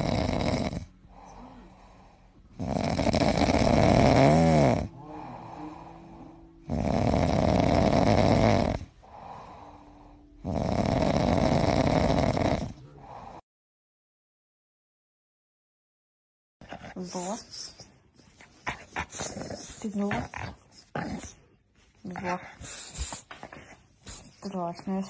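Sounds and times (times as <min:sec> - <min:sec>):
loud snoring: 0:00.0 - 0:13.4.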